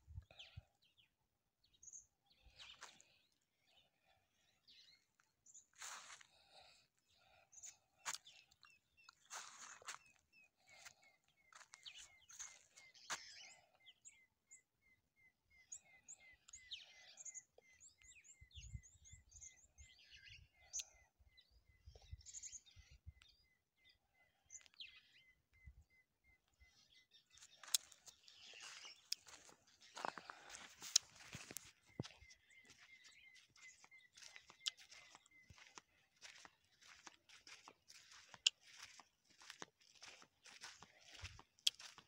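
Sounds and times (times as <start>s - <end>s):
birds chirping: 0.1s - 42.0s
footsteps scuffing on sand: 5.8s - 6.2s, 9.3s - 10.0s, 27.6s - 42.0s.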